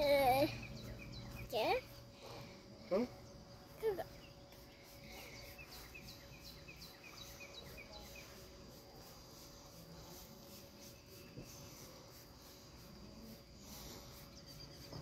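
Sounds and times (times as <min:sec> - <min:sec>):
bird singing: 0:00.0 - 0:01.9, 0:02.9 - 0:08.5.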